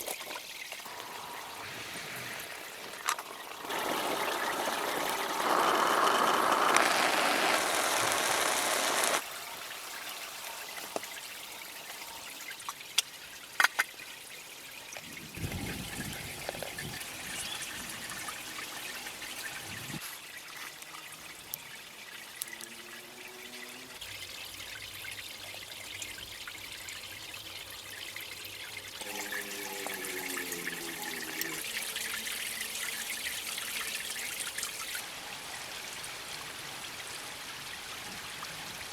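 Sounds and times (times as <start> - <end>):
water pouring: 0.0 - 13.8, 24.0 - 38.9
water trickling: 0.0 - 38.9.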